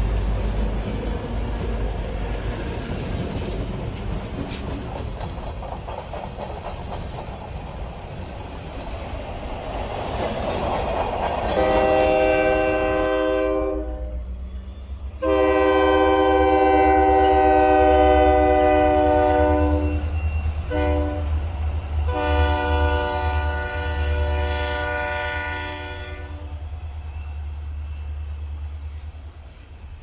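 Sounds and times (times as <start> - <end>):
locomotive rumble: 0.0 - 30.0
locomotive air horn blasts: 11.6 - 14.2, 15.2 - 21.3, 22.1 - 26.6.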